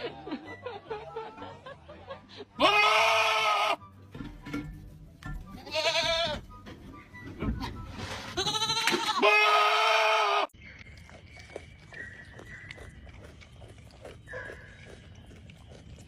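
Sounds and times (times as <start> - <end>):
goat bleating loudly: 2.6 - 3.8, 5.6 - 6.4, 8.3 - 10.5.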